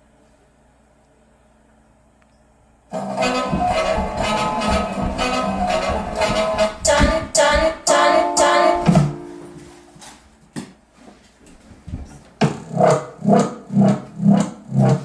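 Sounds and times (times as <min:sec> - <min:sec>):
pulsing synth beat: 0:03.0 - 0:09.3
knocks: 0:03.2 - 0:08.0
song ending on held chord: 0:07.9 - 0:09.8.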